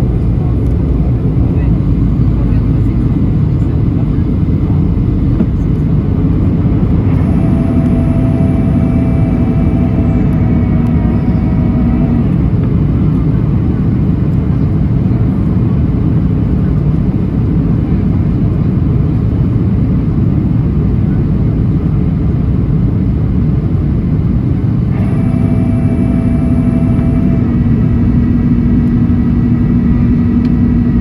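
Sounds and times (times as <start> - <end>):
humming engine tone: 0.0 - 17.2, 24.2 - 31.0
airplane cabin roar: 0.0 - 31.0.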